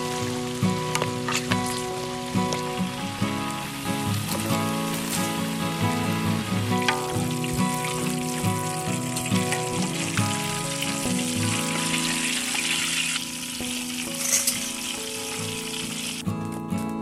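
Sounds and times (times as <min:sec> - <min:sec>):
meat sizzling in hot oil: 0:00.0 - 0:17.0.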